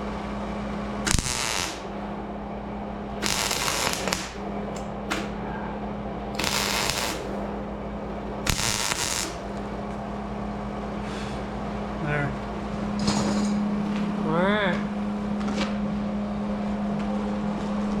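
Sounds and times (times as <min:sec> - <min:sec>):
steady low hum: 0:00.0 - 0:17.6
welder crackling on sheet metal: 0:01.1 - 0:02.2, 0:03.2 - 0:05.4, 0:06.4 - 0:07.7, 0:08.4 - 0:09.8.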